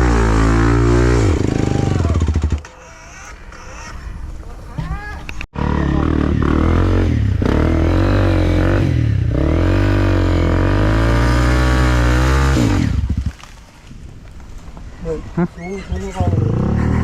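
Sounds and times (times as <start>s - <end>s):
dirt bike engine revving: 0.0s - 3.9s, 5.6s - 13.3s, 16.2s - 17.0s.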